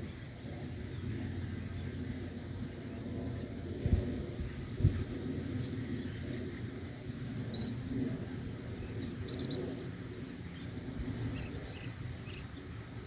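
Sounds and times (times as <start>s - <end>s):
small birds chirping: 7.5s - 12.7s.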